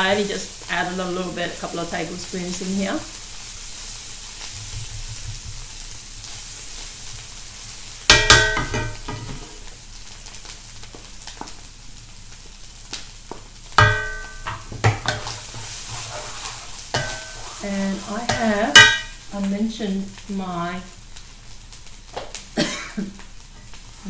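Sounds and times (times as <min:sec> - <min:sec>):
sizzling in a wok: 0:00.0 - 0:24.0
metallic clanks: 0:13.8 - 0:15.3, 0:18.3 - 0:19.2
spatula stirring: 0:13.8 - 0:19.3.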